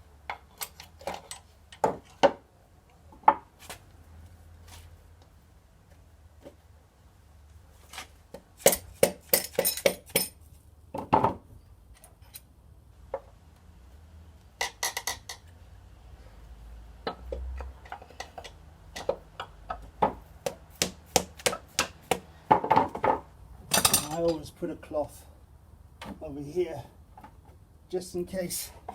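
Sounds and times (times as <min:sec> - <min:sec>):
metal tools tapping on metal: 0:08.7 - 0:10.4, 0:23.7 - 0:24.4.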